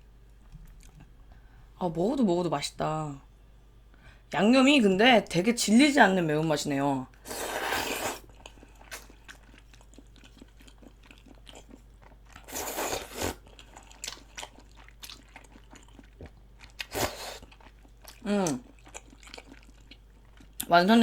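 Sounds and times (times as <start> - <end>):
chewing with wet clicks: 0.6 - 1.1, 8.3 - 12.5, 13.4 - 20.8
slurping: 7.2 - 9.1, 12.4 - 13.4.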